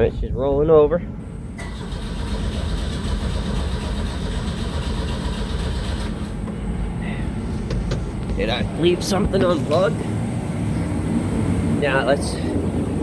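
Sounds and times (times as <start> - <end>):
engine cranking without starting: 1.5 - 6.4
person speaking: 8.2 - 10.1.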